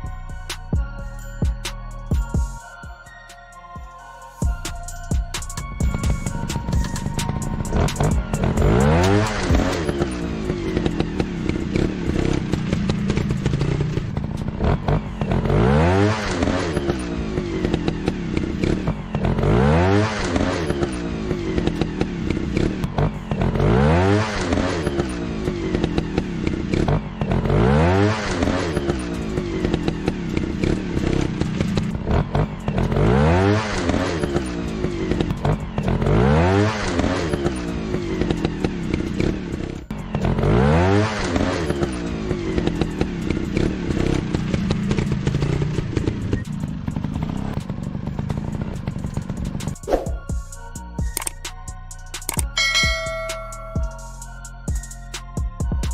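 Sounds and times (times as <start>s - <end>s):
motorcycle engine revving: 5.1s - 54.8s.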